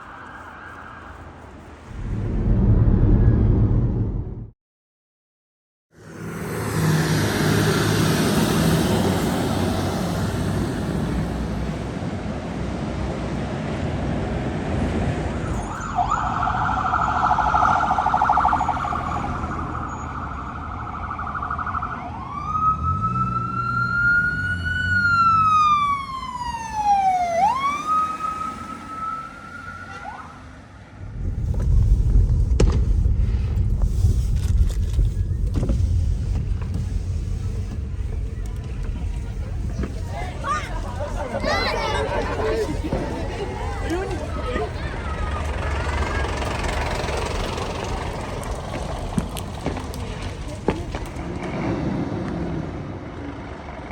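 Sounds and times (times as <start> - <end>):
emergency vehicle siren: 0.0 - 1.8, 15.3 - 31.0
road and engine noise: 0.0 - 4.5, 5.9 - 53.9
heavy low rumble: 1.8 - 4.6, 31.0 - 51.6.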